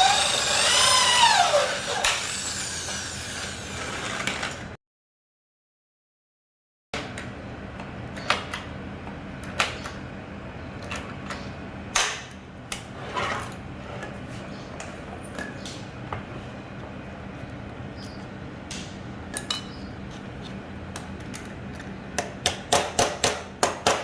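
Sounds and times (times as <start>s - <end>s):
steady low hum: 7.0s - 22.7s.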